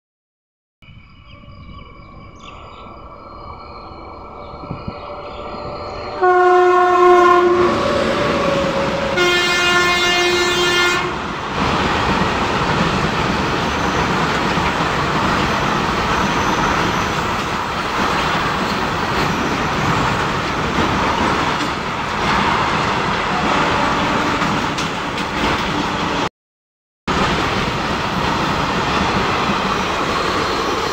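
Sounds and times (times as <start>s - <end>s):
locomotive horn blasts: 6.2s - 8.0s, 8.7s - 11.2s, 23.4s - 24.6s.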